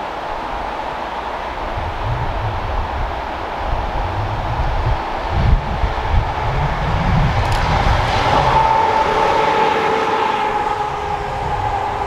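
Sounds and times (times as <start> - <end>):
electric train passing: 0.0 - 12.0
high whine sinking in pitch: 3.8 - 12.0.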